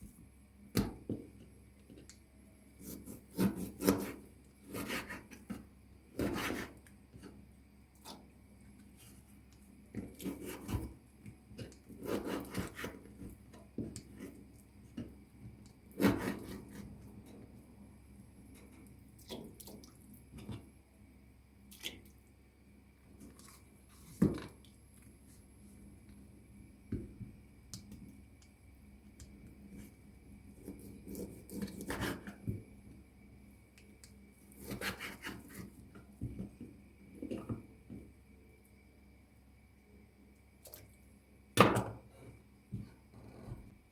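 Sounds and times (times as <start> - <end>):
rubbing and scraping in kitchen: 2.8 - 7.4, 11.6 - 15.1, 29.6 - 32.6.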